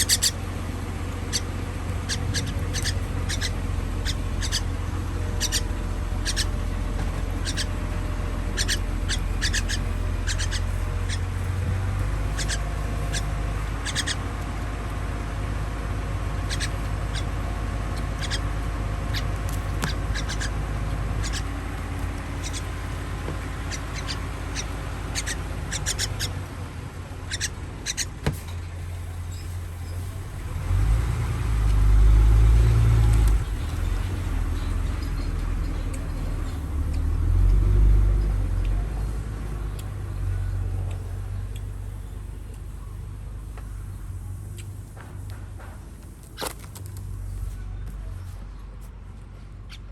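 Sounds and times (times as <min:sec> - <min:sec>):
baby bird cheeping: 0:00.0 - 0:14.5, 0:16.4 - 0:26.4, 0:27.3 - 0:28.2, 0:28.8 - 0:30.7, 0:33.0 - 0:39.2
loud low rumble: 0:00.0 - 0:27.2
steady low hum: 0:00.0 - 0:49.9.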